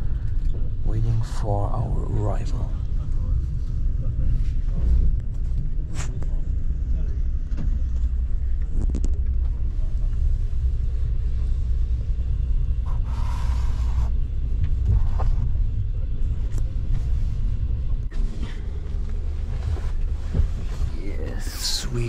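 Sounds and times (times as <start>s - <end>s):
low rumble of train running: 0.0s - 22.0s
hiss: 12.9s - 14.1s.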